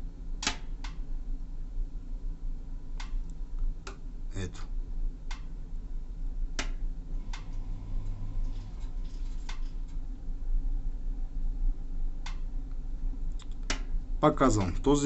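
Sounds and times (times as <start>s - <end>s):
pellet stove humming: 6.6s - 10.1s.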